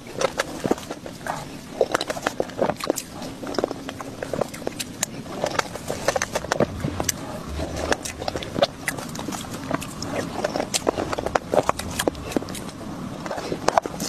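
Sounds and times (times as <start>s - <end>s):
wet chewing and lip smacks: 0.0s - 14.0s.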